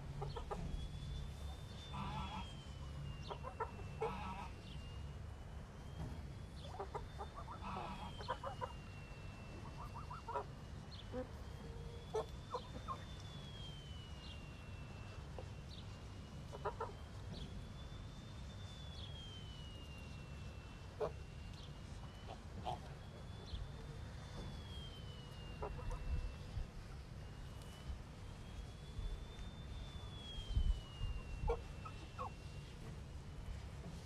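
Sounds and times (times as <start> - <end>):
chickens clucking: 0.0 - 0.8, 3.3 - 4.8, 6.6 - 8.8, 9.6 - 13.1, 16.5 - 17.0, 22.0 - 22.9, 25.6 - 26.3, 31.4 - 33.0
steady low rumble: 0.0 - 34.0
thin high whine: 0.0 - 34.0.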